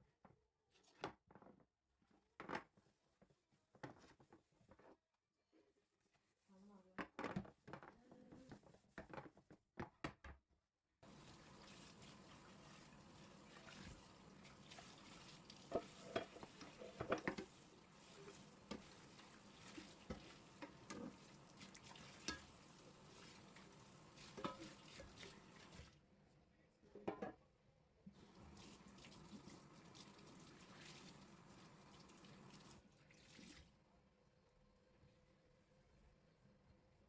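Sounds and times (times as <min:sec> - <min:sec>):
utensils and dishes clinking: 0:15.5 - 0:17.6, 0:22.0 - 0:22.7.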